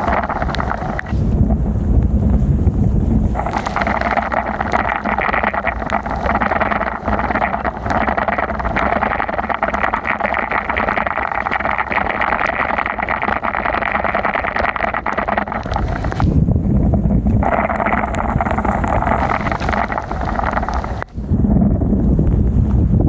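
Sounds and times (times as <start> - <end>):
rain and wind on microphone: 0.0 - 23.0.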